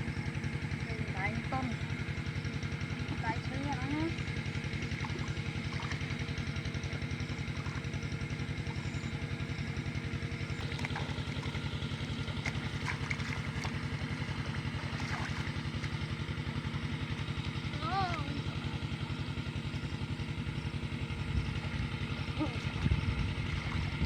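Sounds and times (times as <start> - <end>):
small engine idling: 0.0 - 24.0.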